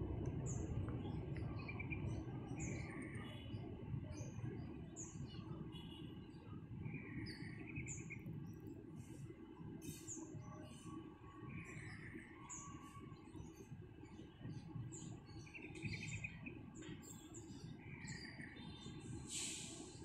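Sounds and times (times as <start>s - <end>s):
faint low rumble: 0.0s - 5.6s
small birds chirping: 0.0s - 20.0s.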